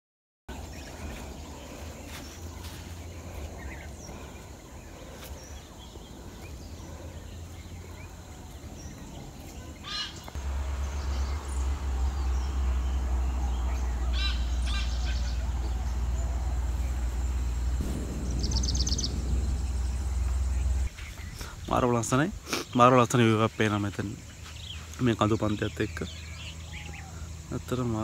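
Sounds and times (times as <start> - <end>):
birds chirping: 0.5 - 28.0
low rumble: 10.4 - 21.3.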